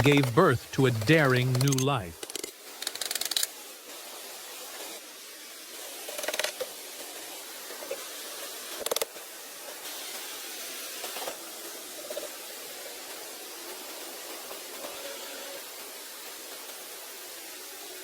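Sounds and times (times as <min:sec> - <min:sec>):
background hiss: 0:00.0 - 0:02.3
sharp clicks: 0:01.2 - 0:01.8.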